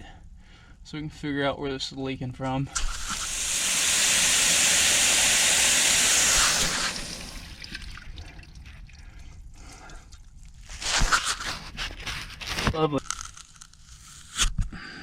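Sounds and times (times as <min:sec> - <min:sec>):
pressurised water hissing: 0:02.8 - 0:08.2.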